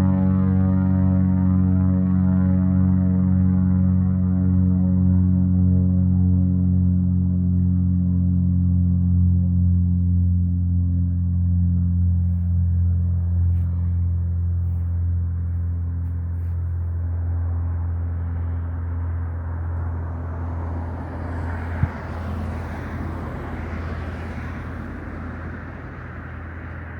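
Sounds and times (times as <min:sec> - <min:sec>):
propeller aircraft engine humming: 0:00.0 - 0:26.9.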